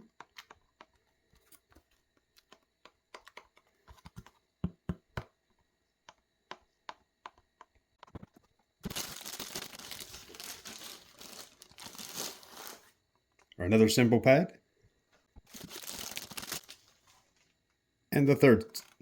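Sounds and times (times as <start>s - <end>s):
plastic wrapping crinkling: 8.8s - 12.9s, 15.5s - 17.0s.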